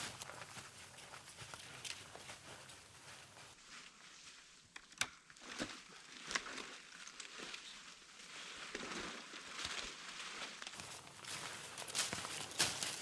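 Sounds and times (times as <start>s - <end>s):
footsteps crunching on forest floor: 0.0s - 3.6s, 10.8s - 13.0s.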